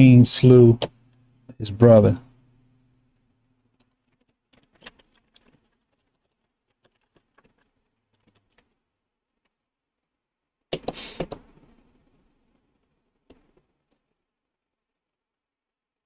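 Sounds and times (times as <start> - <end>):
keyboard and mouse clicks: 3.8 - 8.8, 10.7 - 11.7.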